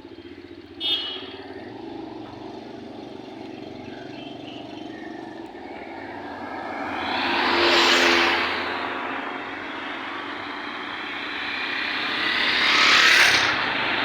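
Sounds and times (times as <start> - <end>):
whooshing noise: 6.6 - 14.0.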